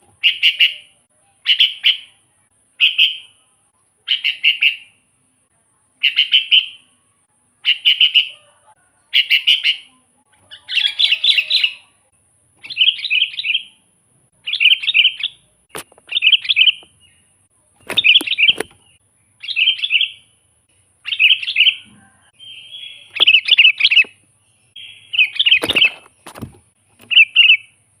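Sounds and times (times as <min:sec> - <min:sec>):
bird singing chattering phrases: 0:00.1 - 0:03.4, 0:04.0 - 0:05.0, 0:06.0 - 0:06.9, 0:09.1 - 0:12.0, 0:12.6 - 0:13.8, 0:14.4 - 0:27.8.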